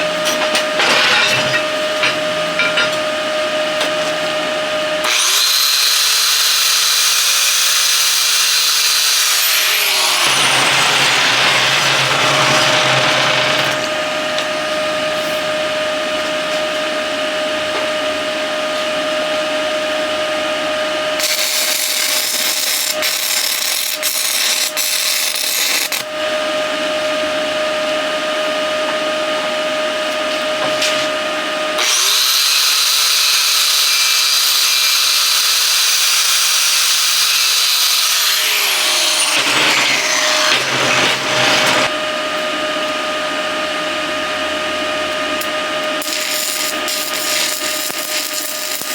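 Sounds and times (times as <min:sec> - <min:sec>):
high-speed power tool whine: 0:00.0 - 0:48.9
shop machinery hum: 0:00.0 - 0:48.9
stick welding hissing and crackling: 0:21.2 - 0:26.1, 0:46.0 - 0:48.9.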